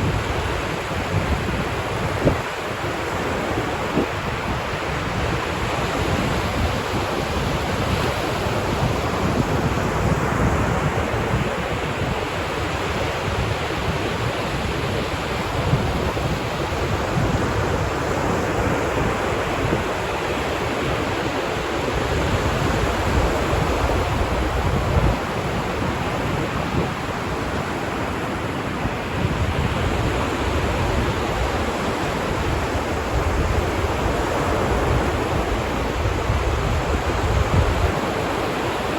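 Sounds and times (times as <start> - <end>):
ocean surf washing on beach: 0.0 - 38.9
wind rumble on microphone: 0.0 - 38.9.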